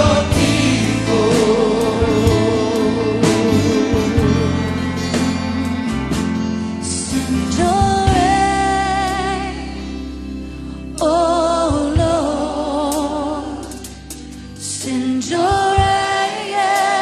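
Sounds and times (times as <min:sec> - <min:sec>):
person singing with vibrato: 0:00.0 - 0:10.1
guitar and band accompaniment: 0:00.0 - 0:17.0.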